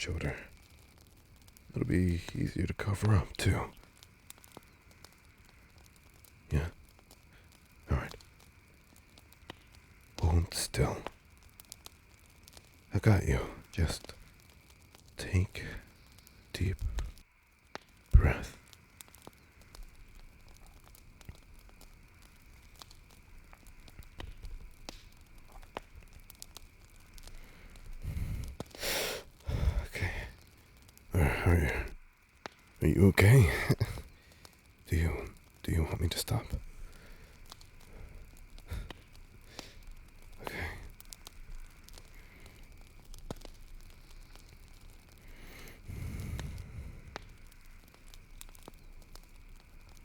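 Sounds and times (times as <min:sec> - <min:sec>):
campfire crackling and popping: 0:00.0 - 0:50.0
faint hiss: 0:00.0 - 0:50.0
soft breaths: 0:00.0 - 0:50.0
person speaking quietly: 0:01.7 - 0:03.8, 0:06.5 - 0:06.8, 0:07.9 - 0:08.2, 0:10.2 - 0:11.1, 0:12.9 - 0:14.2, 0:15.2 - 0:15.9, 0:16.5 - 0:17.1, 0:18.1 - 0:18.6, 0:29.5 - 0:30.4, 0:31.1 - 0:31.9, 0:32.8 - 0:34.0, 0:34.9 - 0:36.6, 0:40.4 - 0:40.9.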